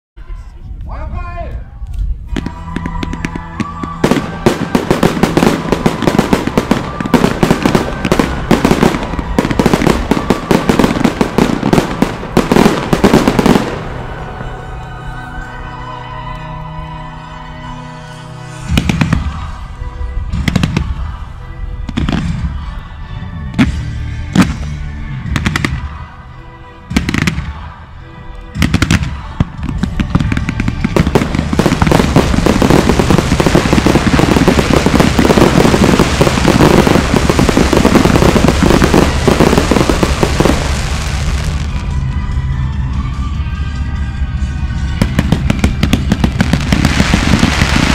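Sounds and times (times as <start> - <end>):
fireworks bursting and crackling: 1.9 - 14.7, 18.6 - 22.8, 23.5 - 26.0, 26.9 - 27.7, 28.5 - 42.1, 44.8 - 47.9.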